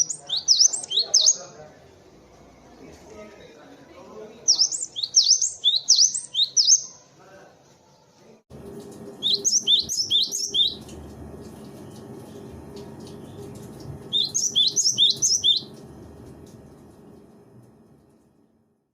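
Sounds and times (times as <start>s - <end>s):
bird chirping: 0.0s - 1.6s, 4.4s - 7.1s, 9.2s - 15.8s
recording noise hum: 8.2s - 18.9s.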